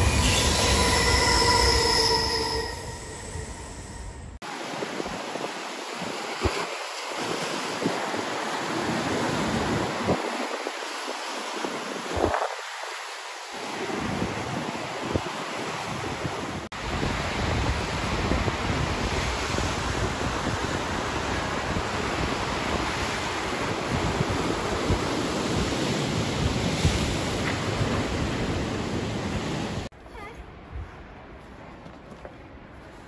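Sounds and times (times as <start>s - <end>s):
sea surf breaking on beach: 4.4s - 29.9s
wind buffeting microphone: 13.9s - 29.8s.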